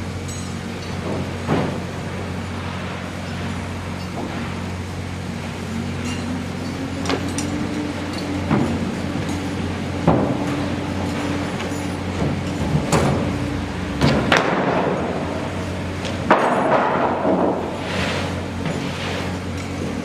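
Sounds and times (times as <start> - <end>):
machinery humming: 0.0 - 20.0
sharp knocks and clanks: 0.3 - 1.9, 6.0 - 15.3, 16.0 - 17.8.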